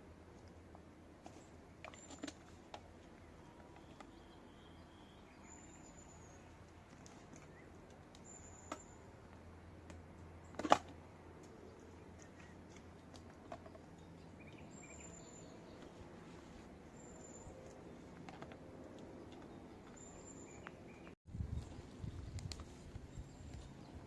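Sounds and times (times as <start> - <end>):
bird chirps: 3.3 - 6.6, 7.4 - 9.0, 13.6 - 16.0, 19.1 - 21.2.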